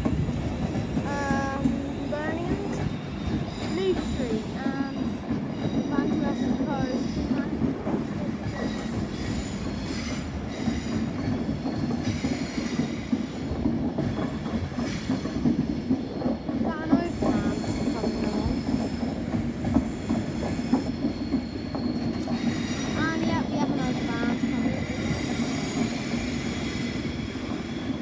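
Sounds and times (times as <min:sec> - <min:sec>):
wheels clicking over rail joints: 0:00.0 - 0:26.4
passenger train rumble: 0:00.0 - 0:28.0
wheel squeal: 0:19.9 - 0:23.0.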